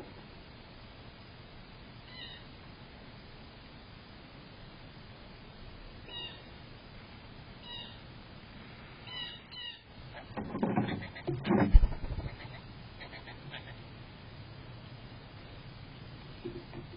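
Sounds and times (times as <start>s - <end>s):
low noisy sound: 0.0s - 16.9s
bird meow-like calls: 2.1s - 2.5s, 6.1s - 6.5s, 7.6s - 8.0s, 9.1s - 9.9s.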